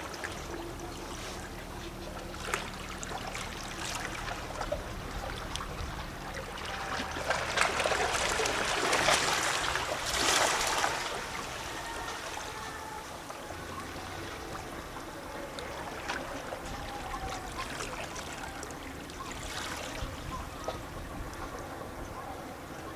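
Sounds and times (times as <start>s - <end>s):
small waves lapping against rocks: 0.0s - 22.9s
water plopping and gurgling: 2.2s - 12.4s.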